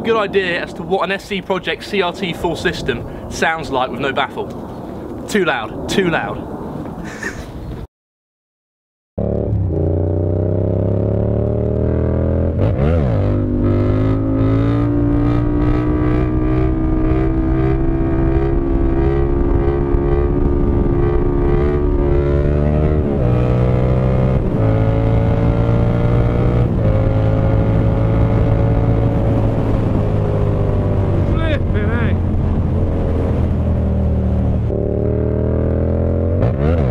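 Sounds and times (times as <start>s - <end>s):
loud motorcycle engine riding: 9.2s - 36.9s.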